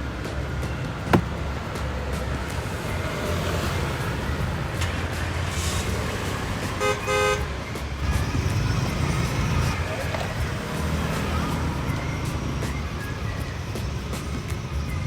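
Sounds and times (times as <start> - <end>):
road traffic rumble: 0.0 - 15.0
vehicle horn honking: 6.8 - 7.5.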